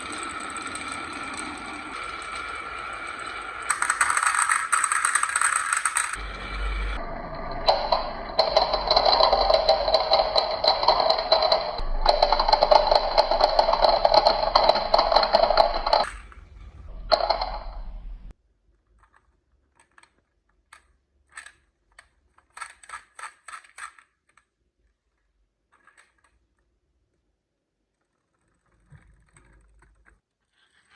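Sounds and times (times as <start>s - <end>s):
marbles knocking together: 0.0s - 6.2s, 7.4s - 16.5s
marbles rattling down track: 0.0s - 18.1s.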